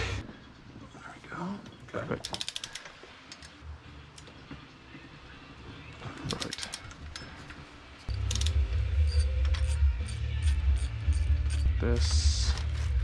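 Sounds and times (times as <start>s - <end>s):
ratchet wrench clicking: 2.2s - 3.6s, 8.0s - 11.7s.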